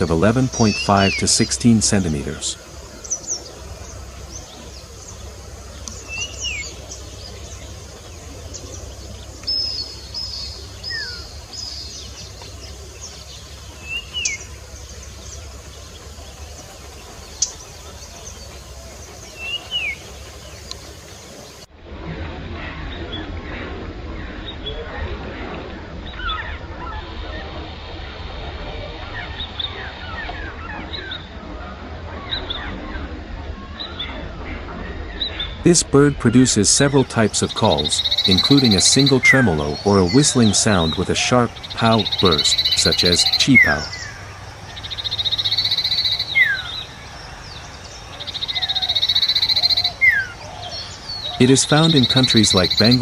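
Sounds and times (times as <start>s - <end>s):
bird trilling call: 0.0s - 21.6s, 36.8s - 53.0s
songbirds chirping: 0.0s - 21.7s, 22.6s - 53.0s
steady low rumble: 0.0s - 53.0s.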